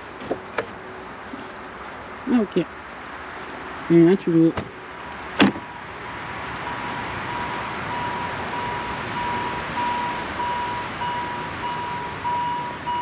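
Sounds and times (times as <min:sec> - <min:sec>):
electronic warning beep: 0:06.7 - 0:13.0.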